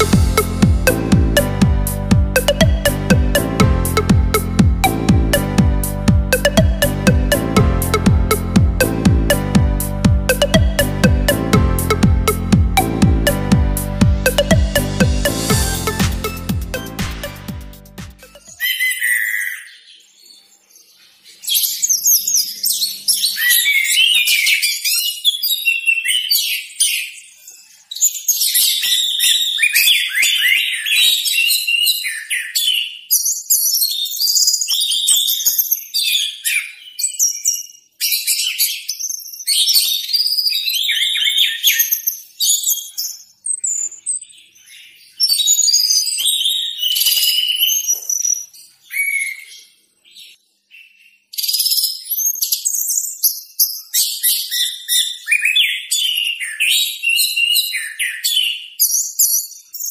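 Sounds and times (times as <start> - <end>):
thrush singing: 0.0 - 18.4.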